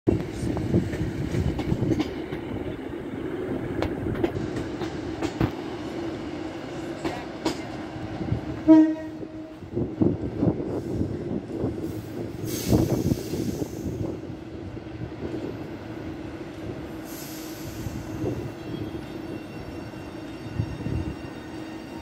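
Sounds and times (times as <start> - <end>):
train running hum: 0.1 - 22.0
train horn: 8.6 - 9.7.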